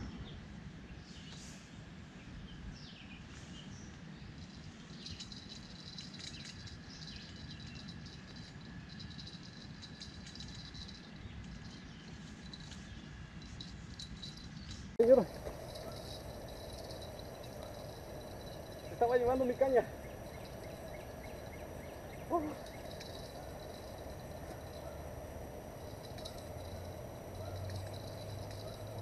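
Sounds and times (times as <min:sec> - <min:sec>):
steady low rumble: 0:05.1 - 0:29.0
birds chirping and calling: 0:14.2 - 0:29.0
thin steady high note: 0:15.0 - 0:29.0.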